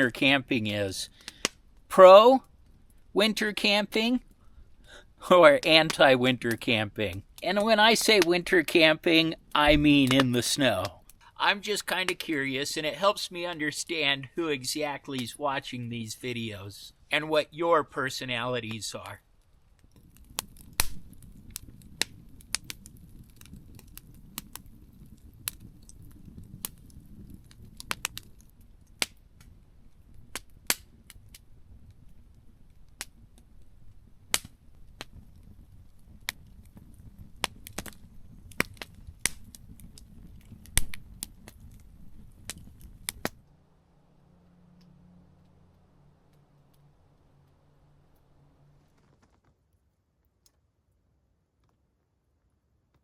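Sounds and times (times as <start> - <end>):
campfire crackling: 0.0 - 53.0
low steady rumble: 31.0 - 49.0.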